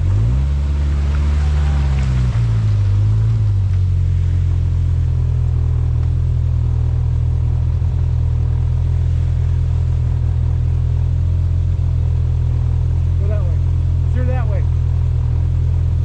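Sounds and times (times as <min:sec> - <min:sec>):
engine rumbling at low revs: 0:00.0 - 0:16.0.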